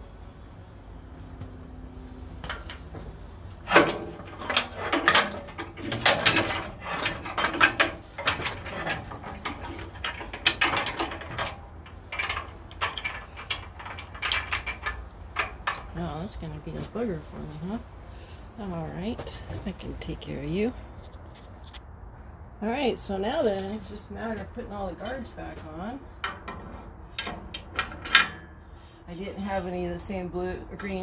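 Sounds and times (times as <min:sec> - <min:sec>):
metallic clicks and clanks: 0:02.4 - 0:16.9, 0:23.2 - 0:28.7.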